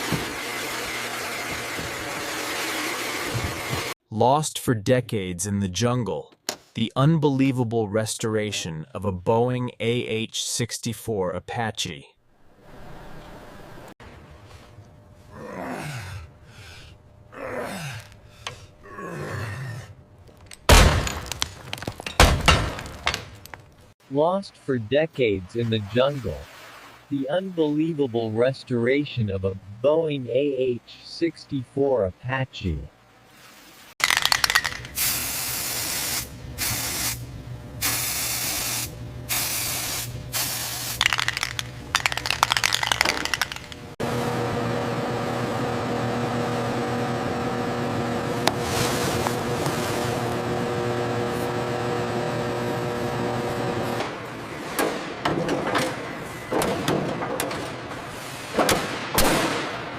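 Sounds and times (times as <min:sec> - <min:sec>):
high-pressure spray hissing: 0:35.0 - 0:37.2, 0:37.8 - 0:41.0
dense crackling and rattling: 0:41.0 - 0:44.0.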